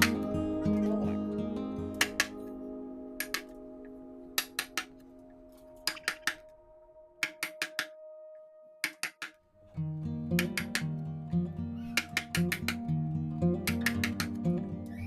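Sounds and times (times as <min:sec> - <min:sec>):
acoustic guitar chord: 0:00.0 - 0:04.4.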